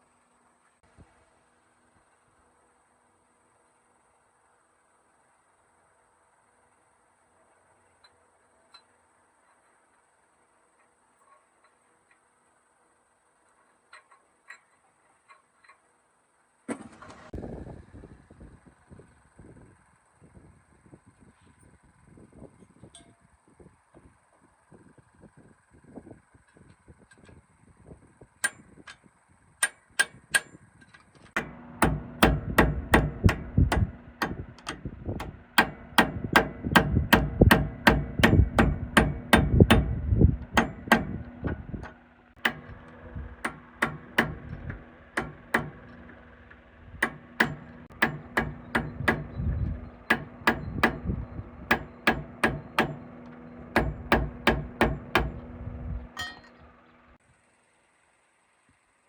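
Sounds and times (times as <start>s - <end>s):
steady low hum: 17.3s - 59.0s
hammer striking: 31.4s - 55.5s, 56.2s - 56.6s.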